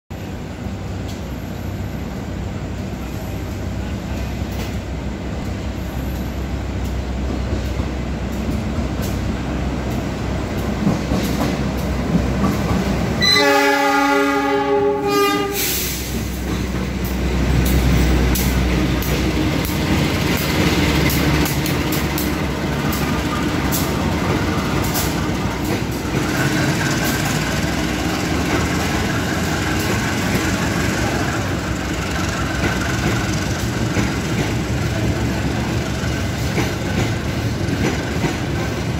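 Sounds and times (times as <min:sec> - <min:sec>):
trains rumbling: 0:00.1 - 0:38.9
locomotive horn: 0:13.2 - 0:16.0.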